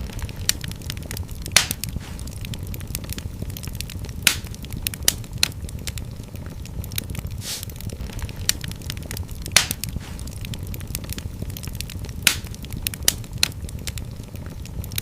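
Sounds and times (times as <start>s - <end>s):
sharp pops of fire: 0.0s - 15.0s
wood fire crackling: 0.0s - 15.0s
brief hiss: 7.4s - 7.7s.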